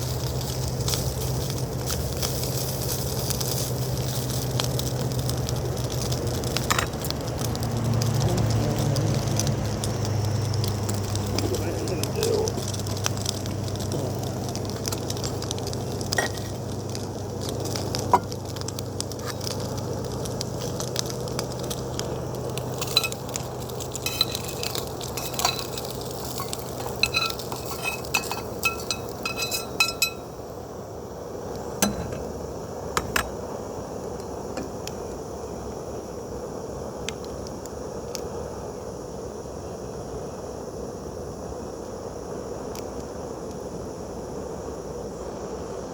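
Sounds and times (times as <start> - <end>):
food sizzling in a pan: 0.0 - 37.0
metal utensil scraping pan: 22.7 - 30.3.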